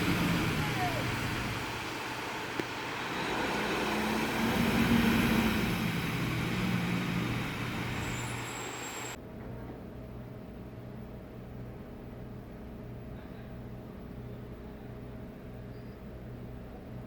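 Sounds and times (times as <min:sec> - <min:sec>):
road traffic noise: 0:00.0 - 0:09.2
vehicle engine hum: 0:00.0 - 0:09.2.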